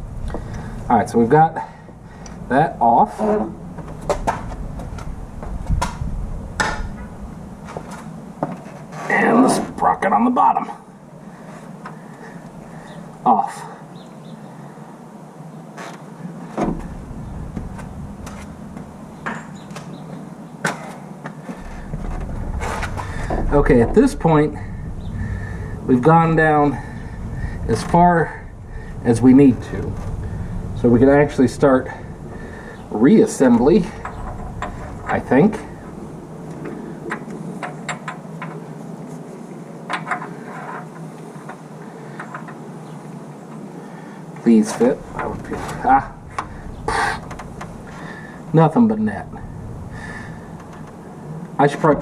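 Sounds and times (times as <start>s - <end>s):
steady low hum: 0.0s - 39.8s, 41.6s - 52.0s
engine parts clicking and knocking: 21.6s - 32.5s, 33.6s - 35.9s, 45.0s - 48.2s.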